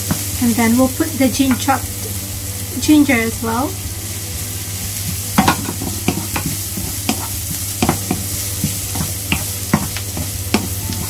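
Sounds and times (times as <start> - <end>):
onion sizzling in hot oil: 0.0 - 11.0
wooden spoon scraping a pan: 0.0 - 11.0.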